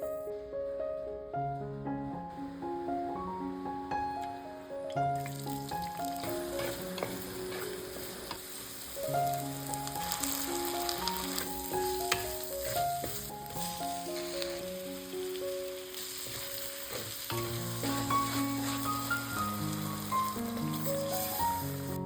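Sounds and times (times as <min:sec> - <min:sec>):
light background melody: 0:00.0 - 0:22.0
food sizzling in a pan: 0:05.1 - 0:22.0
spoon scraping a pan: 0:06.1 - 0:08.9, 0:10.1 - 0:14.7, 0:15.9 - 0:20.0.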